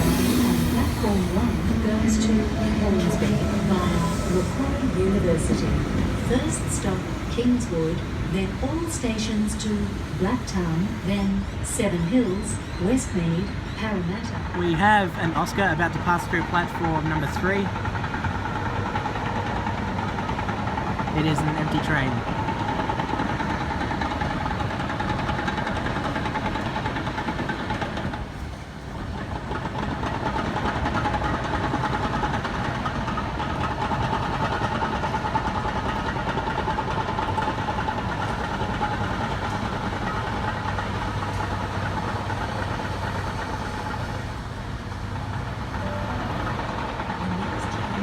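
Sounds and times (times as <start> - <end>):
steady high tone: 0.0 - 14.0, 45.7 - 48.0
electric train passing: 0.0 - 48.0.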